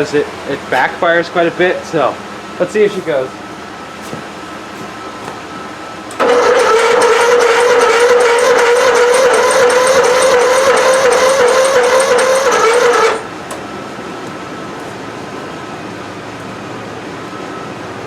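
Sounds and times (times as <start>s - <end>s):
electric starter cranking engine: 6.1s - 13.6s.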